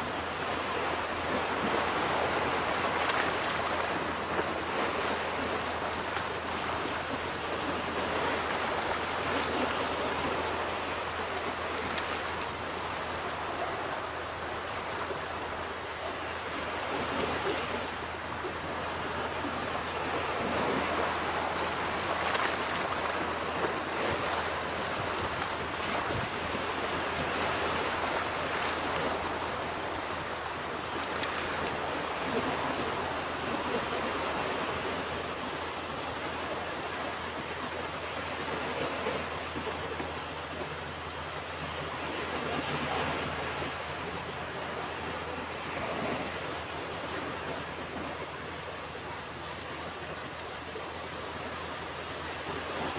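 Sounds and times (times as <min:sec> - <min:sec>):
ocean waves breaking: 0:00.0 - 0:52.9.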